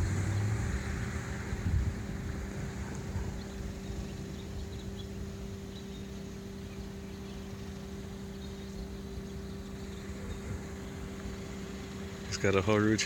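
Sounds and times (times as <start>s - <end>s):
wind buffeting microphone: 0.0s - 6.2s
steady low hum: 0.0s - 13.0s.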